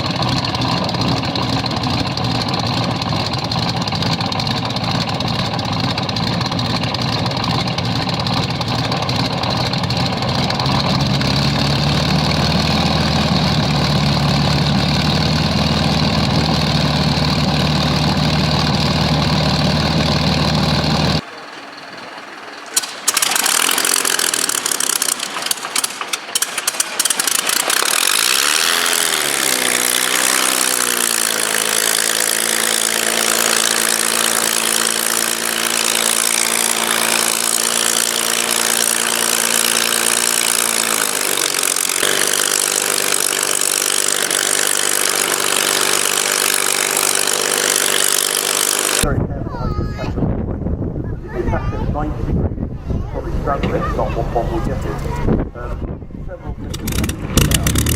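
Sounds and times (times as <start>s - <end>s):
piston aero engine running: 0.0s - 49.3s, 51.4s - 57.9s
engine starting with sharp pops: 22.6s - 28.5s, 56.7s - 57.9s.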